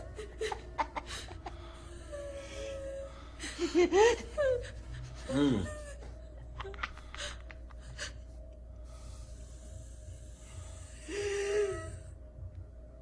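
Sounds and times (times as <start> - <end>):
heavy breathy gasping: 4.6 - 6.2
person moaning: 5.2 - 6.1.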